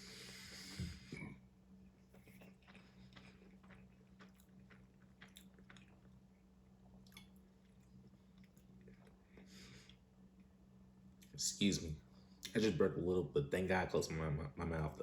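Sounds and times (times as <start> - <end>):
wet chewing clicks: 2.1 - 6.3.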